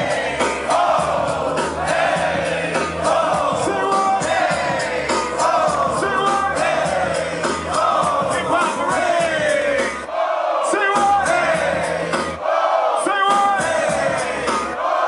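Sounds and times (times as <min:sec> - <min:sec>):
drum beat: 0:00.0 - 0:10.0, 0:10.8 - 0:12.4
bass line: 0:00.0 - 0:10.1, 0:11.0 - 0:12.4, 0:13.4 - 0:14.8
crowd singing along: 0:00.0 - 0:15.0
voices singing: 0:00.0 - 0:15.0.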